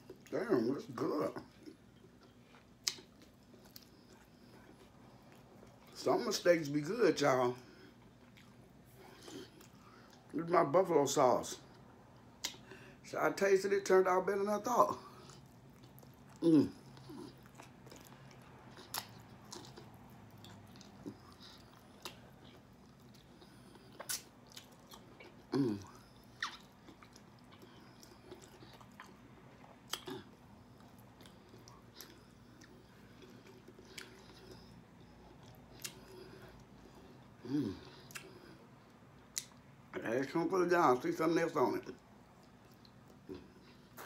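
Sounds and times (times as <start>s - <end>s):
chewing and biting: 1.4s - 6.0s, 7.8s - 10.3s, 15.1s - 39.6s
wet mouth clicks and smacks: 24.0s - 24.7s, 26.4s - 27.2s.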